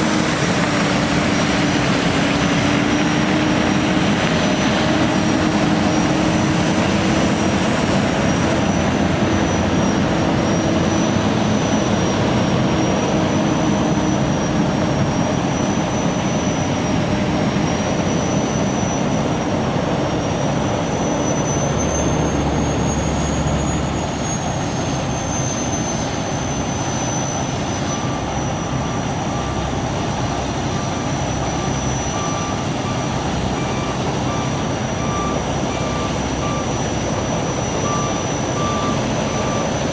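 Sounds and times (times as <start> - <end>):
heavy truck engine running: 0.0 - 39.9
high wavering whine: 0.0 - 39.9
backup alarm beeping: 30.7 - 39.9.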